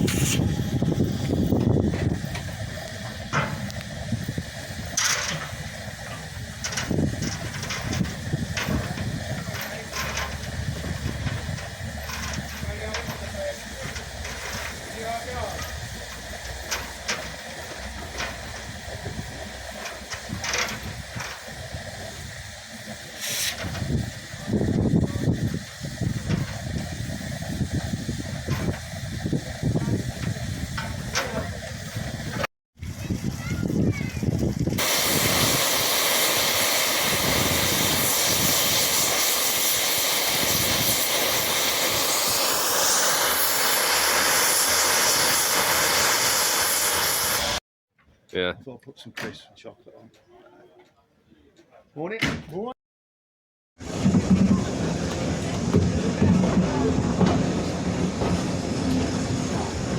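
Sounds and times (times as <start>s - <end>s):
short hisses of air: 0.0s - 1.5s, 20.8s - 29.2s, 34.7s - 47.6s
locomotive engine rumble: 0.0s - 47.6s, 53.8s - 59.9s.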